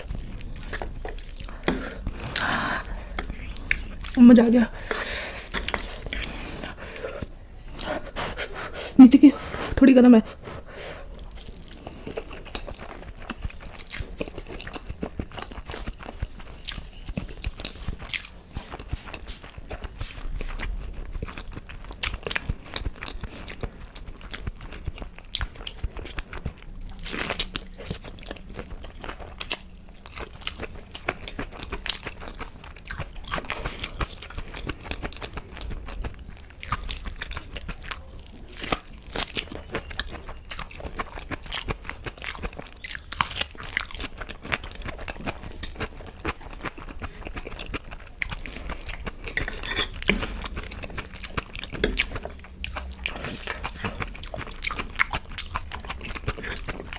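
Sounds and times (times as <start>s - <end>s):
crunchy chewing of fried food: 0.0s - 8.8s, 10.4s - 56.9s.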